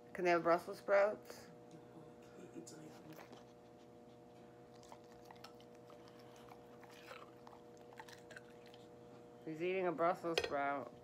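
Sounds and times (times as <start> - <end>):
steady low hum: 0.0 - 11.0
faint chewing with clicks: 2.7 - 9.4.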